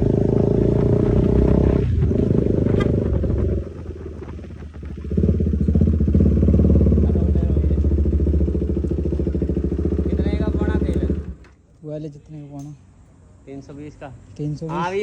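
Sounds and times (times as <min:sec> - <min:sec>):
motorcycle engine with loud exhaust: 0:00.0 - 0:11.6.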